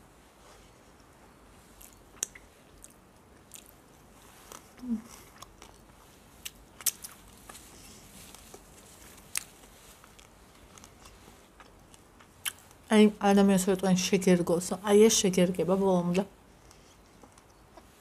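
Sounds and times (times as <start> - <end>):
person chewing food: 0.7 - 12.9, 16.4 - 18.0
wet mouth clicks and smacks: 1.9 - 3.7.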